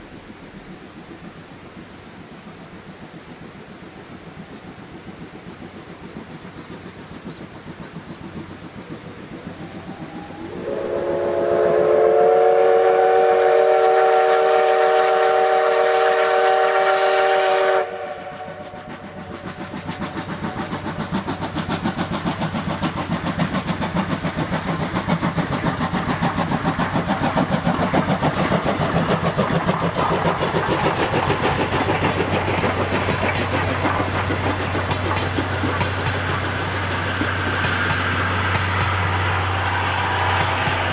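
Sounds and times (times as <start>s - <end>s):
locomotive exhaust beats: 0.0s - 40.9s
running train noise: 0.0s - 40.9s
steam locomotive whistle chord: 9.7s - 19.0s.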